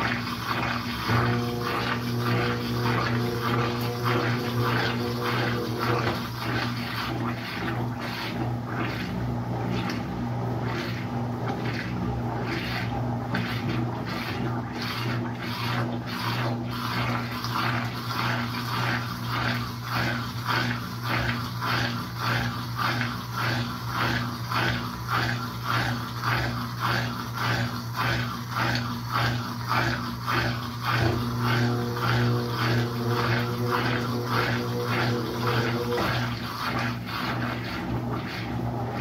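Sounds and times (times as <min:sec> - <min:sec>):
rhythmic swishing of washing: 0:00.0 - 0:39.0
washing machine motor hum: 0:00.0 - 0:39.0.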